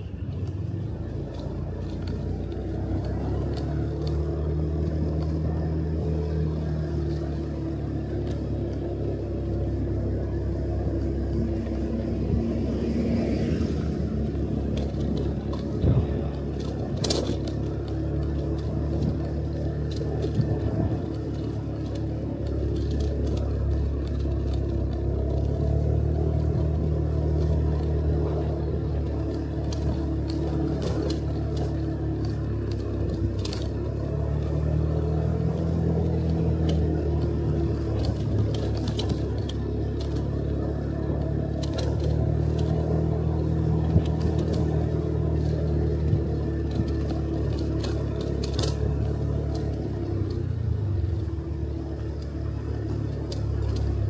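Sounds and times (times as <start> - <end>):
motorcycle engine running: 0.0 - 54.0
light rattling clicks: 14.0 - 54.0.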